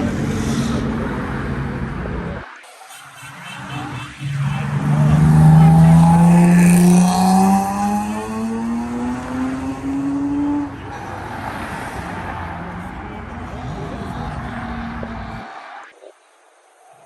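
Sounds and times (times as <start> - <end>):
car engine accelerating: 3.8 - 15.8.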